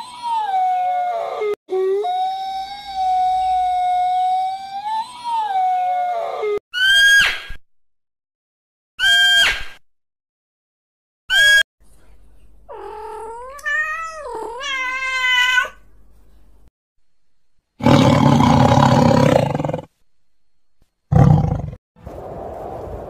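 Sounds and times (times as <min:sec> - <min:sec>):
roar-like animal call: 0:17.8 - 0:19.9, 0:21.1 - 0:21.8.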